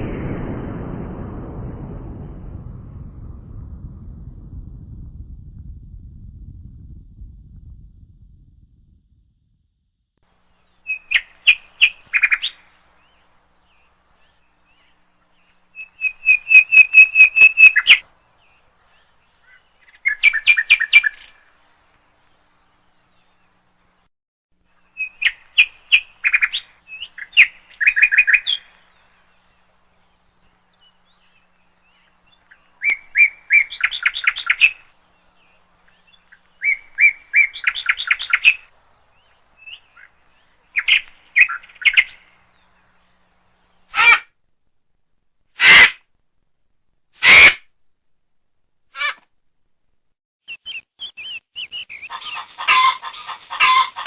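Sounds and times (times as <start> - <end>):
small bird chirping: 10.4 - 21.4, 24.8 - 44.1, 50.4 - 54.0.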